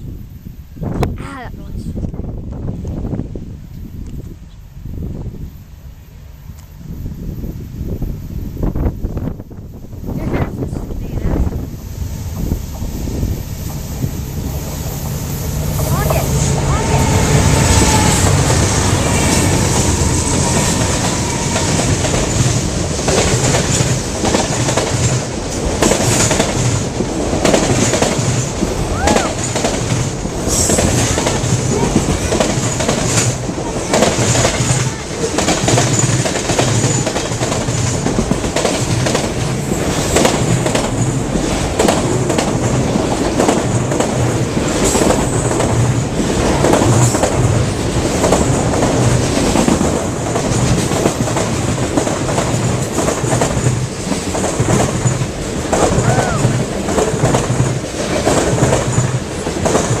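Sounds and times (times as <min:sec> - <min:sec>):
train wheels clattering over rail joints: 0:17.4 - 1:00.0.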